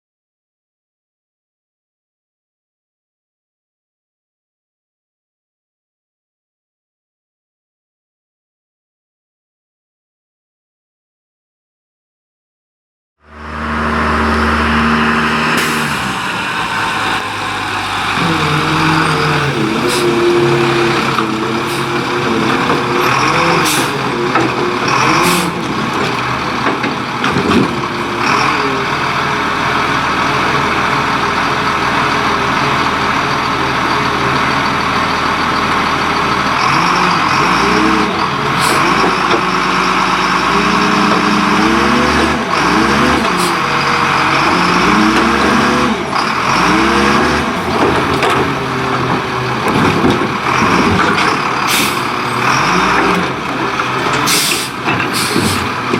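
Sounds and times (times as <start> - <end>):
garbage truck engine revving: 13.2 - 55.9
air brake hiss: 54.3 - 55.7.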